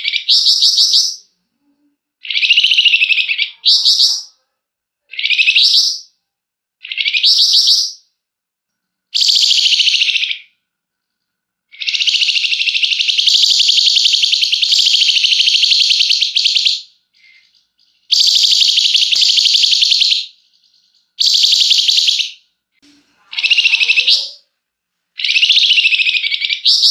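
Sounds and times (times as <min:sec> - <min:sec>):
songbird trilling: 0:02.2 - 0:04.3, 0:11.7 - 0:22.4, 0:23.3 - 0:24.4, 0:25.2 - 0:26.9.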